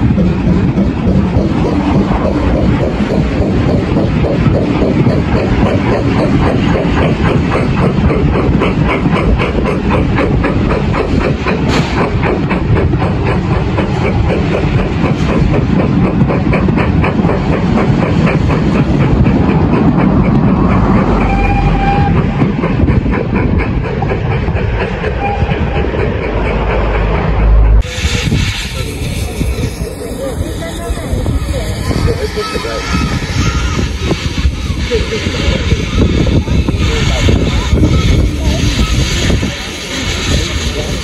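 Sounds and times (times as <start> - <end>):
low train rumble: 0.0 - 41.0
train wheels clicking: 0.0 - 41.0.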